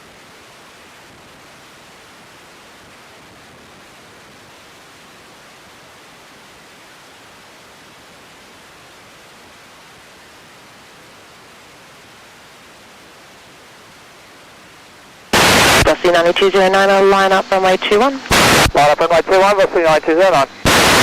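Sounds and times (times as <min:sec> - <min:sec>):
radio hiss: 0:15.3 - 0:21.0.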